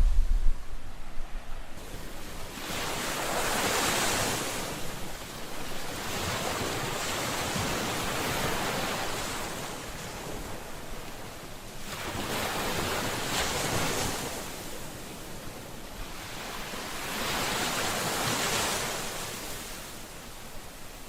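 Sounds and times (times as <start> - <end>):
ocean waves breaking on shore: 0.0 - 21.0.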